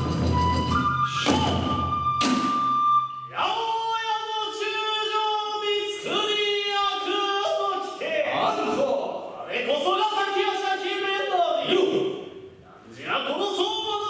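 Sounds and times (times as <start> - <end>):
held flute note: 0.0 - 3.6.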